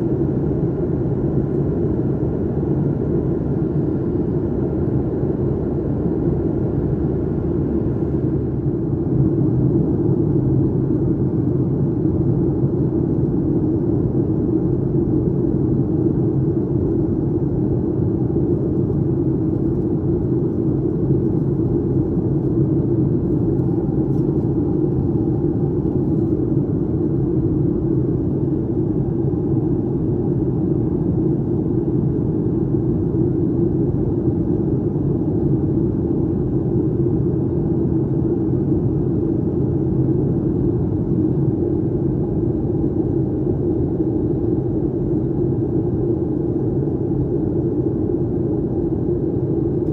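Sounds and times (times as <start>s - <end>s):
airplane cabin engine drone: 0.0s - 49.9s.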